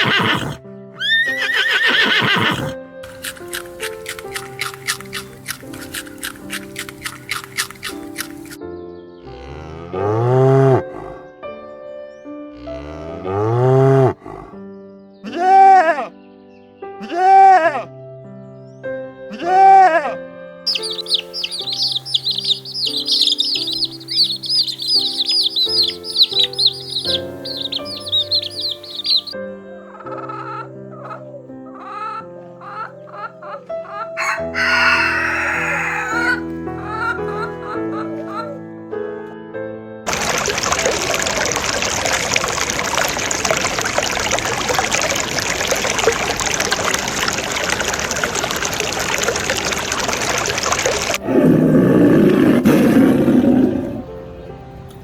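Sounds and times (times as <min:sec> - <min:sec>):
small birds chirping rapidly: 0:00.0 - 0:11.3, 0:20.7 - 0:38.6
background music with held chords: 0:00.2 - 0:40.1
small crackles: 0:03.0 - 0:08.6
running water stream: 0:20.7 - 0:29.3, 0:40.1 - 0:51.2
lower bird calls: 0:20.7 - 0:38.6.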